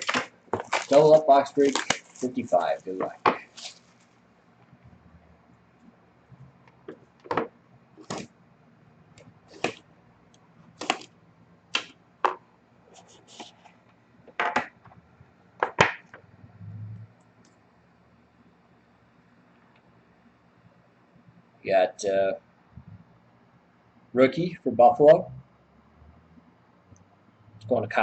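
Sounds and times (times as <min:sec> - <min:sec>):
packaging clicks and rustles: 0:00.0 - 0:04.2, 0:10.8 - 0:11.2.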